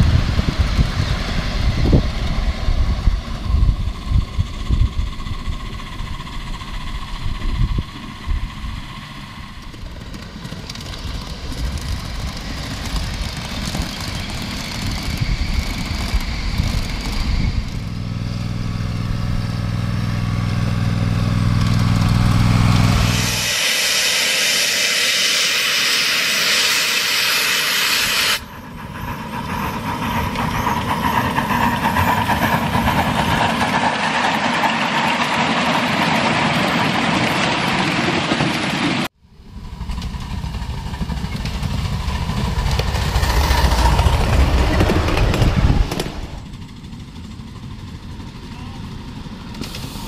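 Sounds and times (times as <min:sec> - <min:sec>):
steam hissing: 0:00.0 - 0:17.9, 0:22.1 - 0:36.8, 0:49.0 - 0:50.0
train wheels rumbling on rails: 0:00.0 - 0:50.0.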